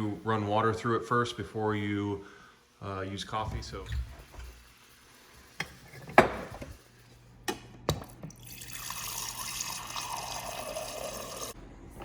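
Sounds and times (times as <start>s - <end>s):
water pouring: 8.3s - 11.6s.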